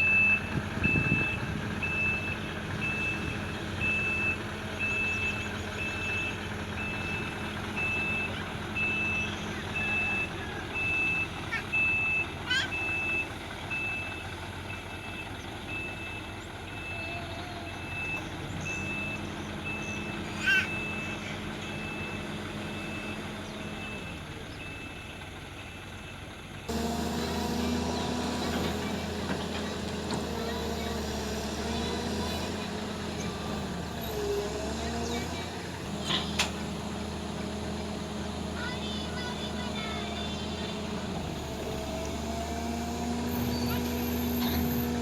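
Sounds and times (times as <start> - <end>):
reversing alarm beeping: 0.0 - 26.2
diesel engine running: 0.0 - 45.0.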